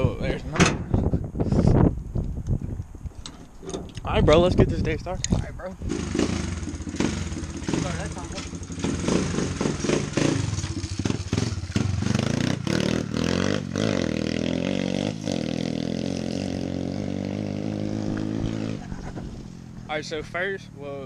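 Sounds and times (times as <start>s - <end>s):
motorbike engine revving: 5.8s - 20.5s.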